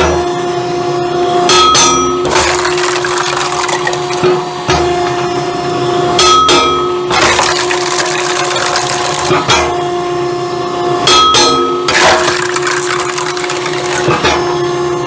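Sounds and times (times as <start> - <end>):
firewood splitter motor hum: 2.2 - 5.3, 7.1 - 9.9, 11.9 - 14.9.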